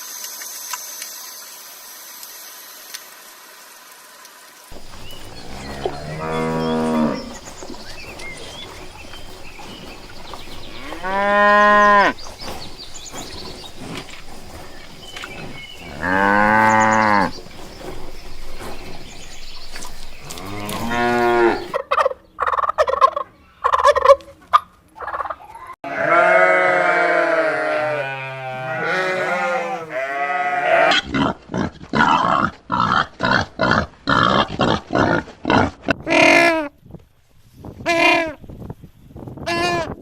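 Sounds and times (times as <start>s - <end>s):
cattle mooing: 4.8s - 17.6s, 20.2s - 21.8s, 25.8s - 31.0s.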